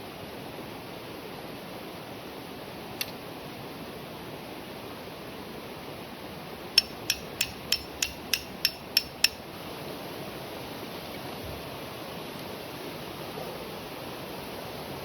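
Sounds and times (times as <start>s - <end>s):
hammer blows on metal: 6.8s - 9.5s.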